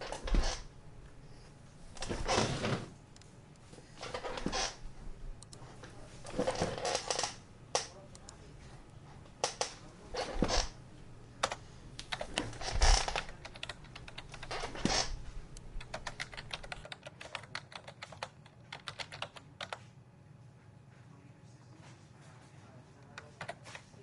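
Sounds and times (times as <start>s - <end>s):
computer keyboard typing: 11.4s - 14.7s, 15.8s - 19.8s, 23.2s - 23.8s.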